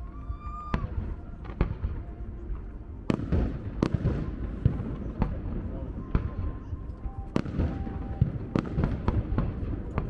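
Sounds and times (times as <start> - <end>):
fireworks crackling: 0.2 - 10.0
fireworks bangs: 3.1 - 6.7, 7.3 - 10.0.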